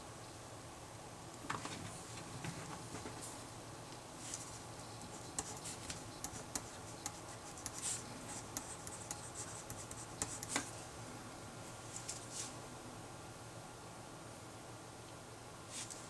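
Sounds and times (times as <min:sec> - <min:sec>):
faint room hum: 0:00.0 - 0:16.0
pen scratching on paper: 0:04.9 - 0:10.7.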